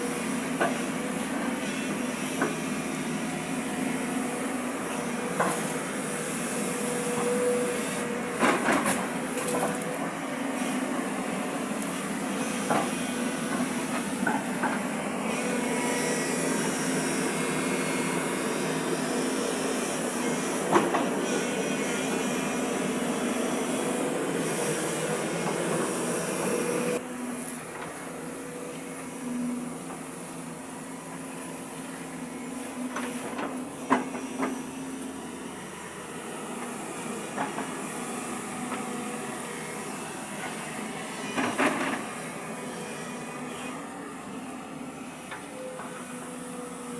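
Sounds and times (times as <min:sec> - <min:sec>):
excavator engine and hydraulics: 0:00.0 - 0:46.9.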